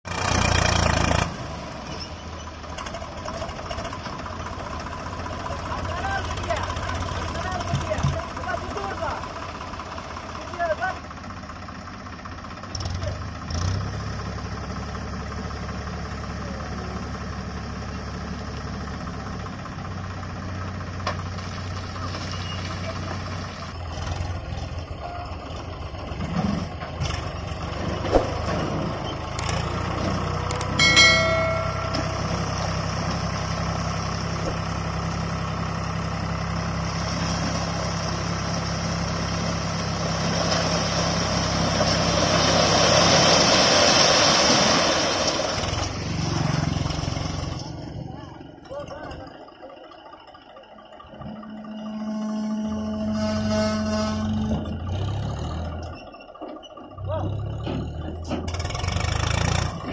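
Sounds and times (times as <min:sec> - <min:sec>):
tractor diesel engine running: 0:00.1 - 0:59.9
brief ringing tone: 0:30.8 - 0:32.7.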